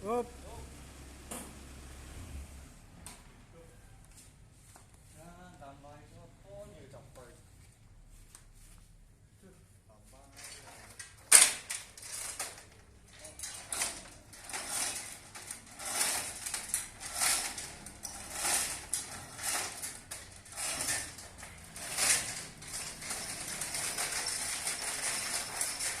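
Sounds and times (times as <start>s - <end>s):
concrete mixer metallic rattling: 10.4s - 26.0s.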